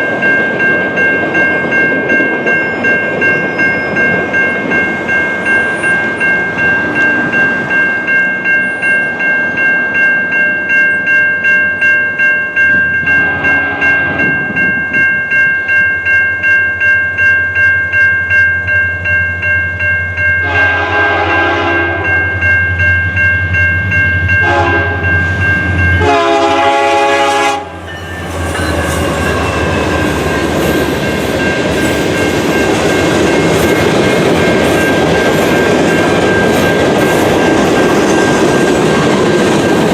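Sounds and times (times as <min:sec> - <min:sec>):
crossing bell ringing: 0:00.0 - 0:39.9
train horn blasts: 0:13.0 - 0:14.3, 0:20.4 - 0:22.2, 0:24.4 - 0:25.2, 0:26.0 - 0:27.9
train wheels rumbling on rails: 0:20.1 - 0:39.9.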